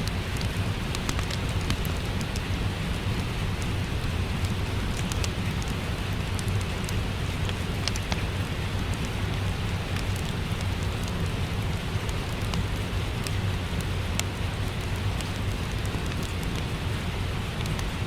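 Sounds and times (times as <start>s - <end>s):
fireplace crackling: 0.0s - 18.0s
steady rain: 0.0s - 18.0s.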